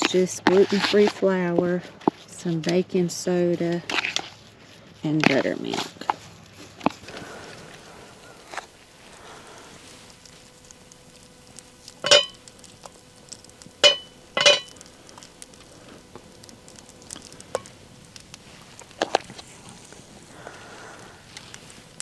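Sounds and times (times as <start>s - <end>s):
utensil clinking against dish: 12.0s - 12.4s, 13.8s - 14.8s.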